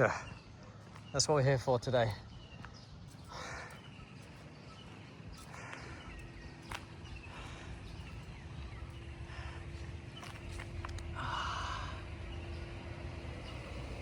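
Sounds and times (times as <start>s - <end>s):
faint steady hum: 2.1s - 14.0s
low rumble: 2.2s - 14.0s
soft scuffs and clicks: 4.2s - 7.0s, 10.2s - 11.1s.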